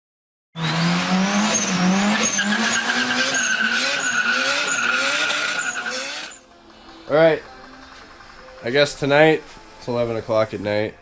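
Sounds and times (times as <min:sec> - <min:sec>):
car engine revving: 0:00.6 - 0:08.6
tyres squealing: 0:01.5 - 0:06.4.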